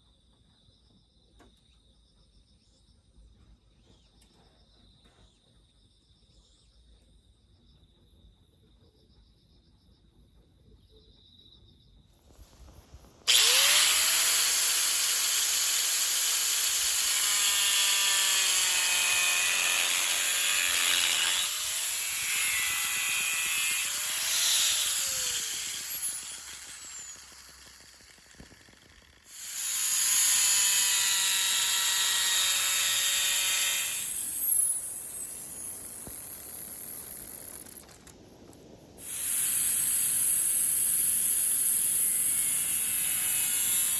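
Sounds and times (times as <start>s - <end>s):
electric power tool motor whine: 13.2s - 38.1s, 39.0s - 43.9s.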